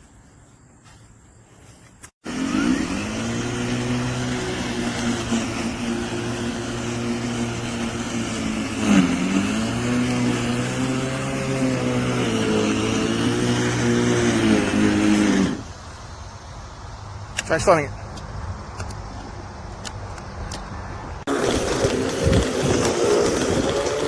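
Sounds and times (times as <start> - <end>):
electric lawn mower humming: 2.2 - 16.0, 21.2 - 24.0.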